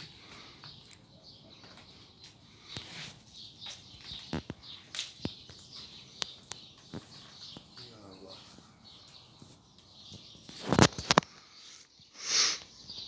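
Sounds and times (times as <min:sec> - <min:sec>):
small birds chirping: 0:00.0 - 0:13.0
sharp clicks and snaps: 0:03.7 - 0:07.8, 0:09.8 - 0:11.5.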